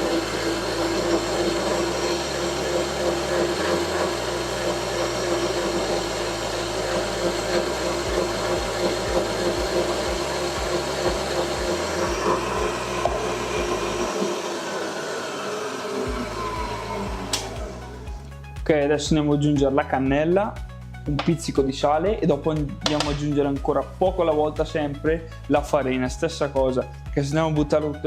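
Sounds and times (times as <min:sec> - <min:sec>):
stand mixer motor humming: 0:00.0 - 0:18.3.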